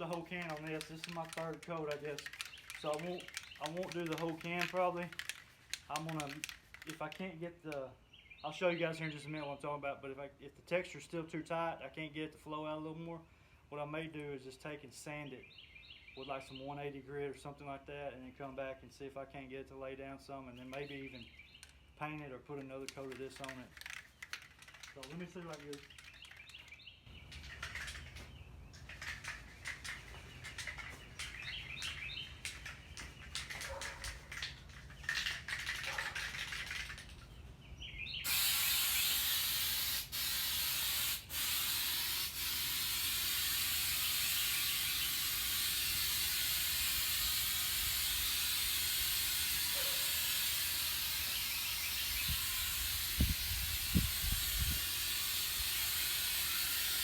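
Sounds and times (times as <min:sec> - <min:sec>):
birds chirping: 0:00.0 - 0:06.8, 0:20.4 - 0:38.3
aerosol can spraying hiss: 0:38.3 - 0:57.0.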